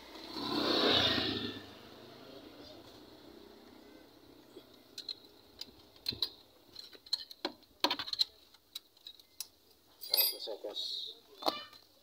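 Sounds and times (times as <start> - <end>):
small metal parts clinking: 4.9 - 10.6.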